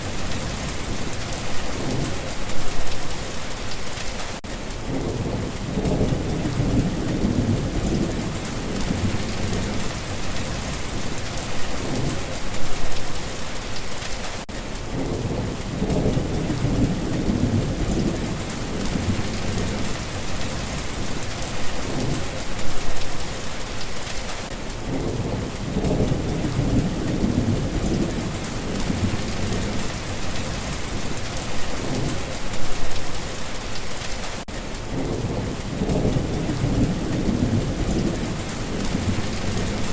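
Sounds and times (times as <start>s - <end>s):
steady rain hissing: 0.0s - 39.9s
rolling thunder: 4.8s - 12.9s, 14.9s - 22.6s, 24.8s - 32.8s, 34.9s - 39.9s.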